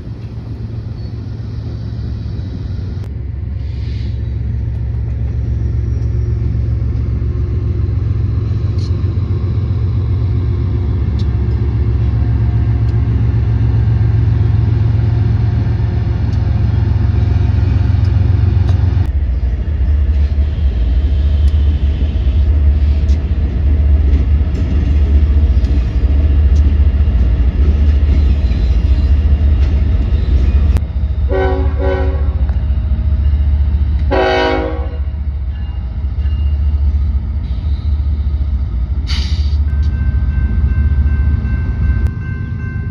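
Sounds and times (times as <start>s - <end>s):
freight train rumbling by: 0.0s - 42.9s
locomotive air horn blasts: 31.3s - 32.4s, 34.1s - 35.1s.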